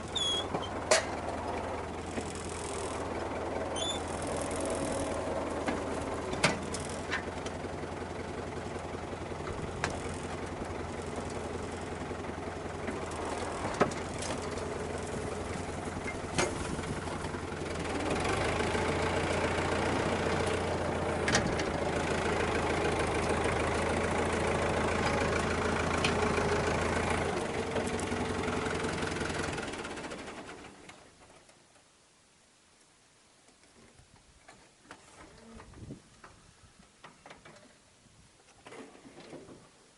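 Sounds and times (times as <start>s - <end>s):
tractor engine running: 0.0s - 31.5s.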